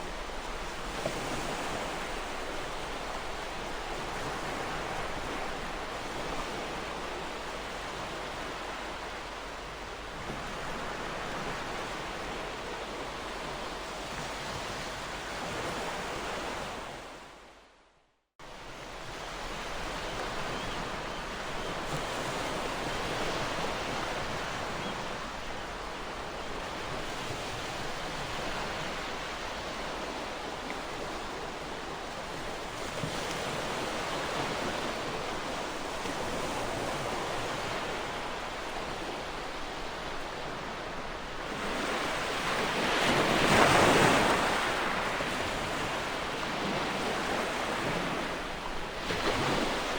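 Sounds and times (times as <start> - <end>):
ocean surf washing ashore: 18.9 - 49.9.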